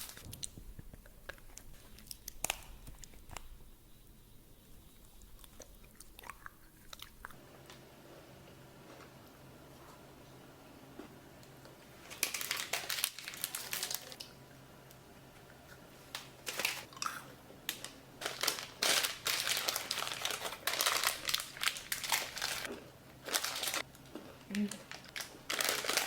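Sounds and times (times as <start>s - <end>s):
candy wrapper crinkling: 12.1s - 14.2s, 16.2s - 16.9s, 17.7s - 26.0s.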